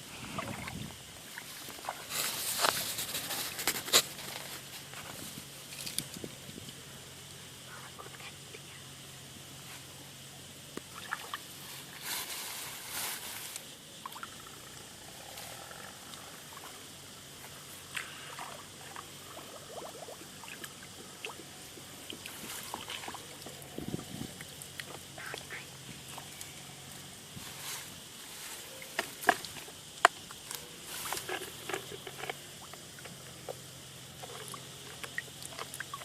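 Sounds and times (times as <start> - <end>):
water splashing and sloshing: 0.2 - 6.2, 10.8 - 12.4, 17.4 - 26.4, 27.4 - 36.0.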